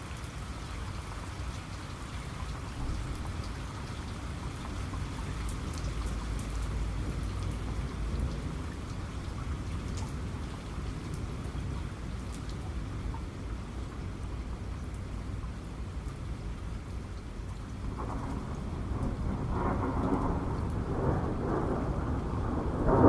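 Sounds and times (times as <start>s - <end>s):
heavy rain falling: 0.0s - 23.0s
distant thunder rumbling: 17.8s - 23.0s.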